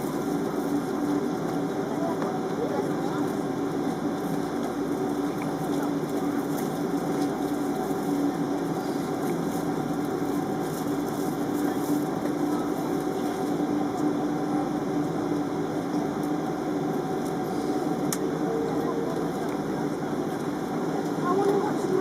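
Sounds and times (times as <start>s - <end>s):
jet engines humming: 0.0s - 22.0s.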